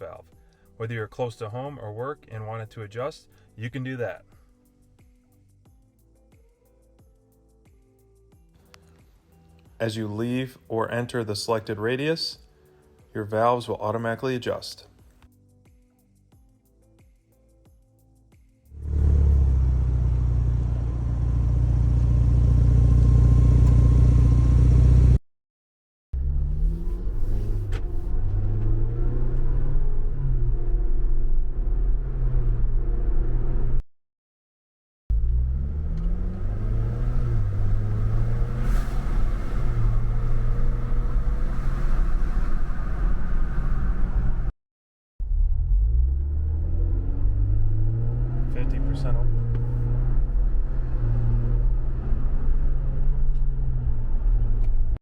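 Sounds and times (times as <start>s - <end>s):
exhaust deep rumble: 18.8s - 25.2s, 35.1s - 44.5s, 45.2s - 55.0s.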